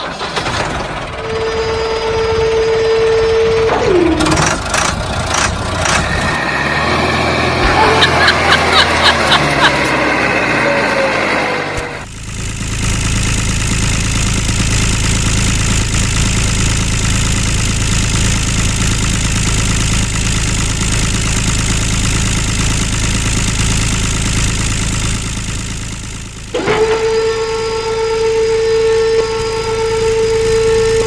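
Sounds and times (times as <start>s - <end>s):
motor humming: 7.4s - 13.8s.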